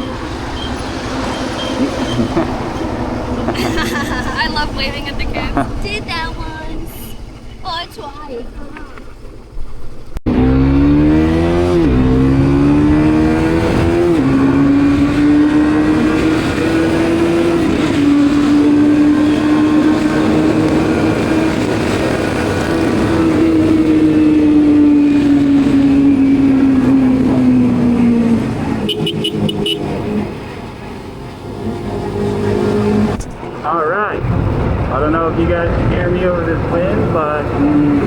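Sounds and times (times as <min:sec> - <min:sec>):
motorcycle engine accelerating: 0:00.0 - 0:06.0, 0:09.1 - 0:33.5
road and wind noise: 0:00.0 - 0:38.0.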